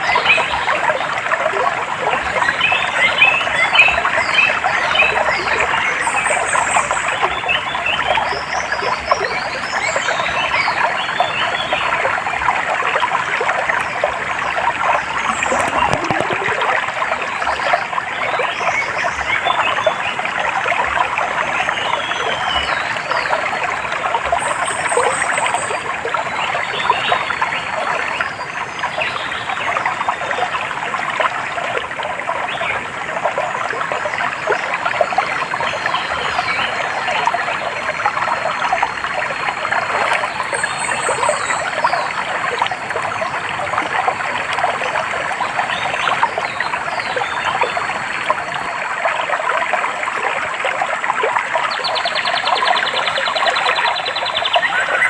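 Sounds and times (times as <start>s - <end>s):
water trickling: 0.0s - 55.0s
birds chirping: 14.6s - 20.0s.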